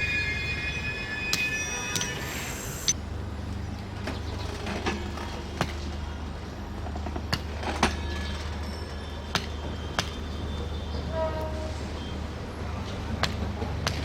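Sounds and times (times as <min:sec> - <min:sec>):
brief pitched tone: 0:00.0 - 0:03.0.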